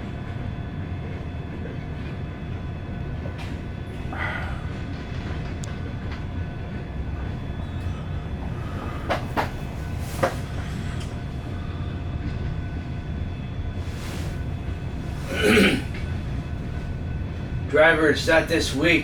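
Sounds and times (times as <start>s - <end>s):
train cars rolling rumble: 0.0s - 19.0s.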